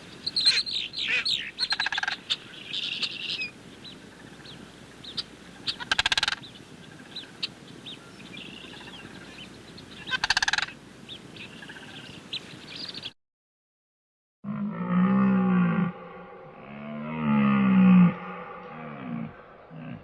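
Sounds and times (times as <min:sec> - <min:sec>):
bird chirps: 0:00.1 - 0:13.2
bird chattering call: 0:00.2 - 0:03.5, 0:04.4 - 0:13.1
lion roaring: 0:14.5 - 0:20.0.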